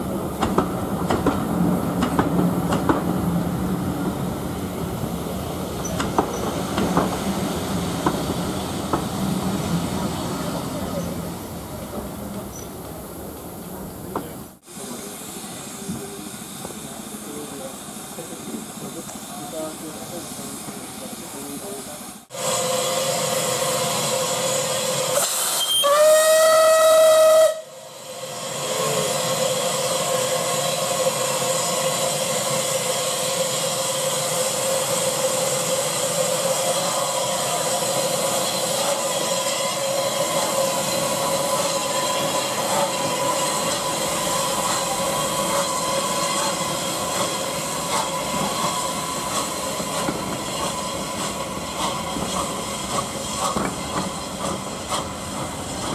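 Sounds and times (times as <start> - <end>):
steam hissing: 0.0 - 55.9
steam locomotive whistle: 22.3 - 34.0, 36.7 - 52.8.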